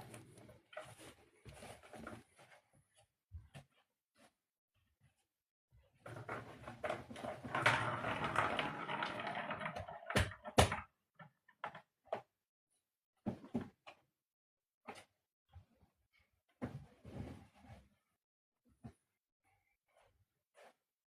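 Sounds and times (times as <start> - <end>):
cats rustling and scrabbling: 0.0 - 3.8.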